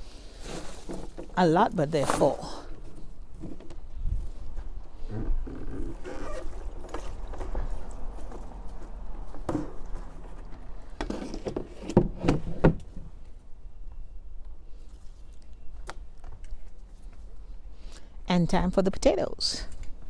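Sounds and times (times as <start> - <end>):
handling rustles and knocks: 0.4 - 4.8.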